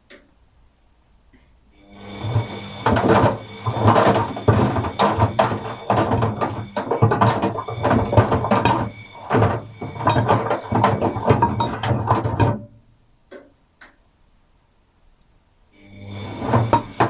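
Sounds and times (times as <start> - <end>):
washing machine drum knocking and sloshing: 2.2 - 12.8, 16.1 - 17.0.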